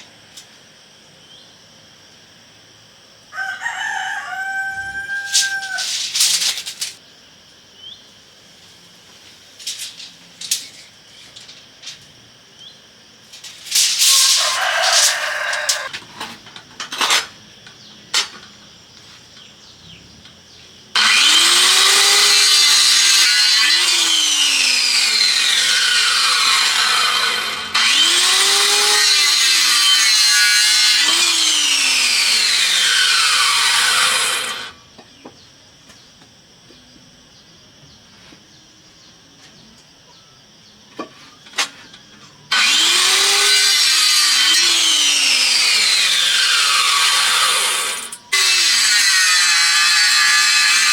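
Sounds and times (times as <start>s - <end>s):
power saw cutting wood: 13.4s - 15.9s, 21.0s - 34.8s, 42.5s - 50.9s.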